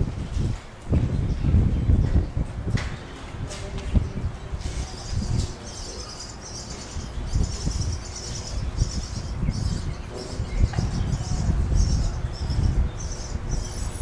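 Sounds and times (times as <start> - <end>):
small birds twittering: 0.9 - 14.0.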